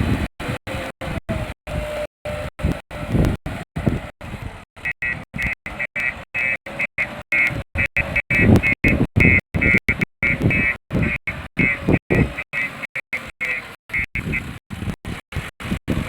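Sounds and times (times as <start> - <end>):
backhoe loader engine: 0.0 - 16.0
high beeping tone: 4.9 - 14.4.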